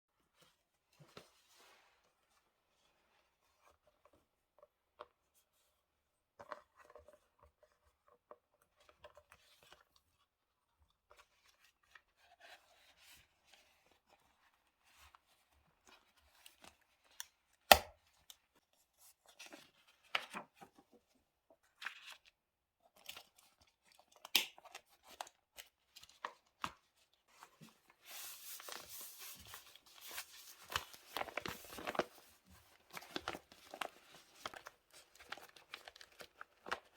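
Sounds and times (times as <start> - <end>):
paper and stickers rustling: 22.9 - 36.9.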